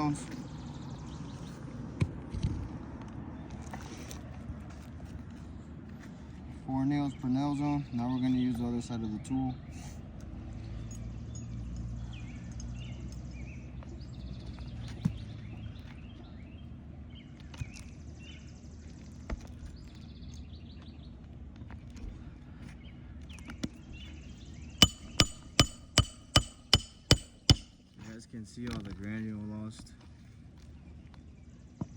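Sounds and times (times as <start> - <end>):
birds chirping and trilling: 10.6 - 21.2
hammer striking roofing nail: 24.8 - 27.8.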